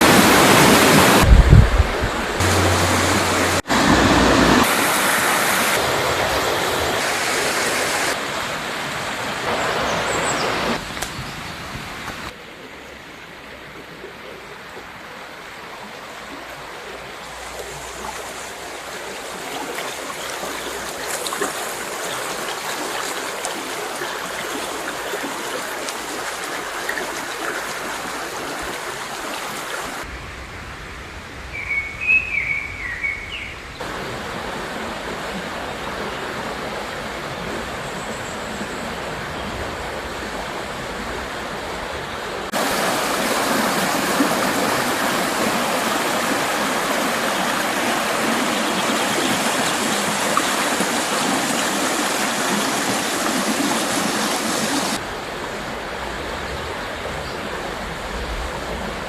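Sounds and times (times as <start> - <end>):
river water rushing over rocks: 0.0 - 12.6, 14.8 - 30.1, 33.8 - 37.8, 38.8 - 59.0
faint bird chirps: 31.5 - 33.7.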